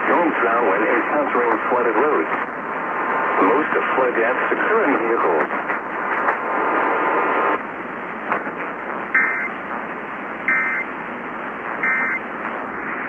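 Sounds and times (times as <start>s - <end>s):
radio static hiss: 0.0s - 13.0s
warbling data tones: 9.2s - 9.6s, 10.5s - 10.9s, 11.8s - 12.2s.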